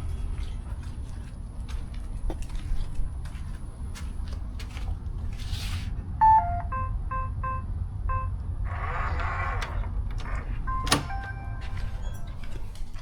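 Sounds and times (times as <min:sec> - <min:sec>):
keypad beeps: 0:06.2 - 0:09.0, 0:09.6 - 0:13.0
mechanical whirr: 0:08.6 - 0:13.0.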